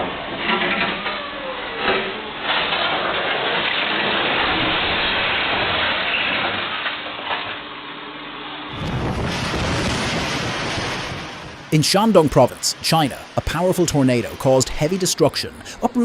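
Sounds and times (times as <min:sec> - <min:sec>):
deep rumbling noise: 0:08.7 - 0:15.0
floodwater rushing: 0:11.7 - 0:16.0.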